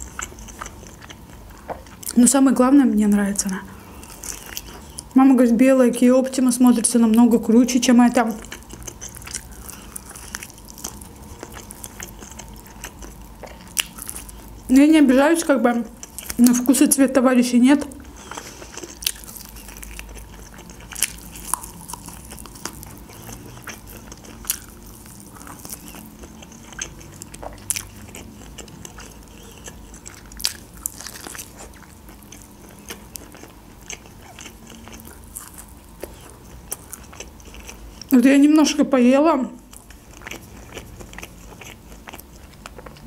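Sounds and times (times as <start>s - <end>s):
person chewing crunchy chicken: 0.0s - 2.2s, 3.7s - 5.2s, 8.4s - 14.7s, 16.0s - 16.7s, 17.9s - 38.2s, 39.6s - 43.0s.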